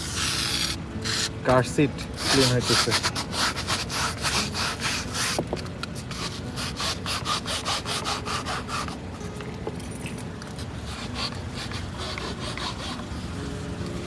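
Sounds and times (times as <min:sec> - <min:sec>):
scrubbing car seat: 0:02.2 - 0:05.4.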